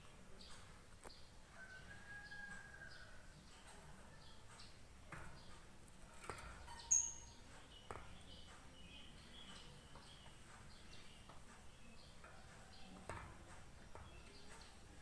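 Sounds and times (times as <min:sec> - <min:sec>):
lovebird chirping: 0:06.7 - 0:12.9.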